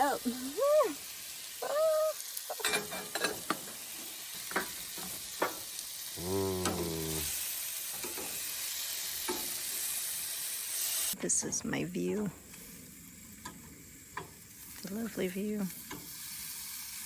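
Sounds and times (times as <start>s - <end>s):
steak sizzling in a pan: 0.0s - 17.0s
utensils clicking against pan: 2.5s - 3.8s, 4.5s - 5.6s, 8.0s - 8.4s, 9.2s - 9.6s, 15.7s - 16.4s.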